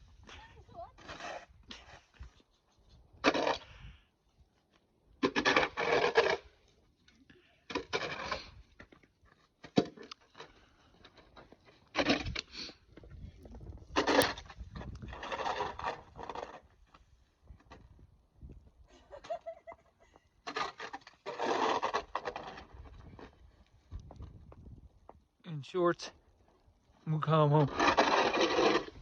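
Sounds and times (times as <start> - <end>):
snow shovel scraping snow: 20.5 - 22.8, 27.2 - 29.0.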